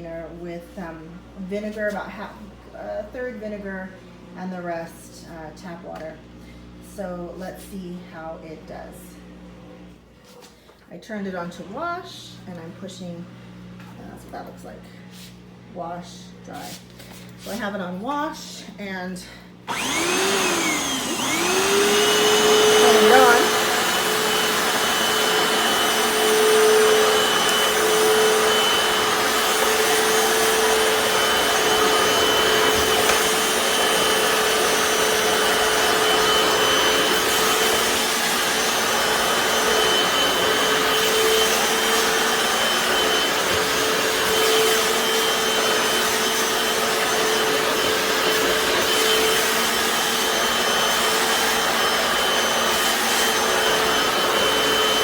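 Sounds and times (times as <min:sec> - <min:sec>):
floor cleaner motor whine: 0:19.6 - 0:55.0
suction rush: 0:19.7 - 0:55.0.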